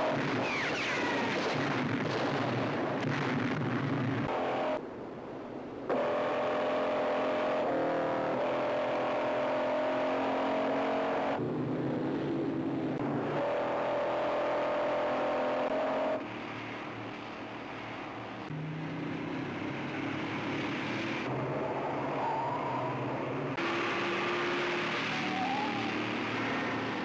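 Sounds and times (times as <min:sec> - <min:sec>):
car engines running at high speed: 0:00.0 - 0:27.0.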